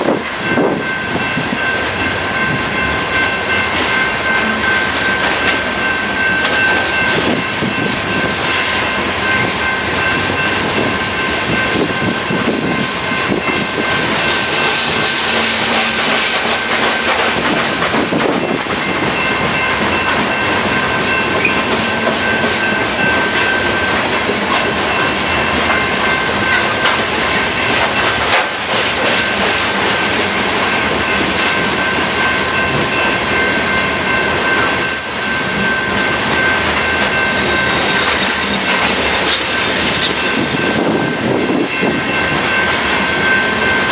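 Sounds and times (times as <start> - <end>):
high ringing wheel squeal: 0.4 - 17.4, 18.4 - 26.7, 31.0 - 43.9
wheels clicking over rail joints: 12.5 - 32.9.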